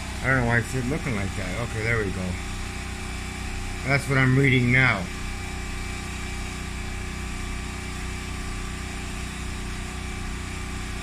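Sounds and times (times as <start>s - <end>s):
mechanical hum with low buzz: 0.0s - 11.0s.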